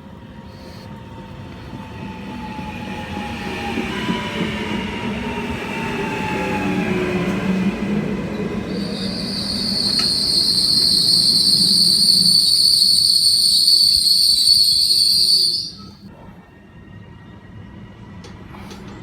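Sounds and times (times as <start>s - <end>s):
low train rumble: 0.0s - 19.0s
train brakes squealing: 8.3s - 19.0s.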